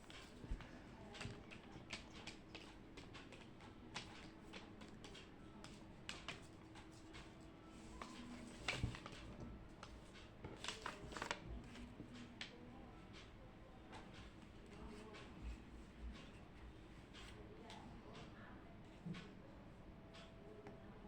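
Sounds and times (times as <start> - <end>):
small clicks and taps at desk: 0.1 - 7.4.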